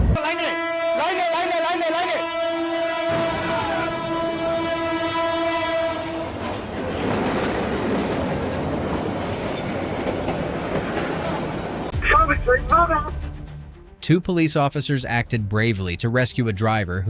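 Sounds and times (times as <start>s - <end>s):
train horn: 0.2s - 6.7s
passing train rush: 3.0s - 13.1s.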